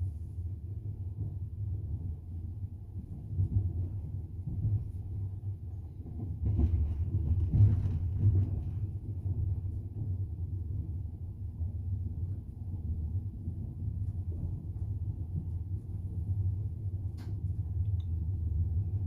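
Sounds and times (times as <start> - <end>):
train rumbling on track: 0.0 - 19.0
train clattering: 3.0 - 10.3.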